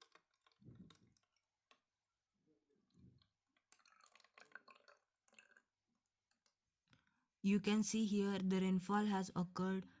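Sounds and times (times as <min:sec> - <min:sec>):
water dripping through funnel: 0:00.0 - 0:01.9, 0:02.8 - 0:06.6.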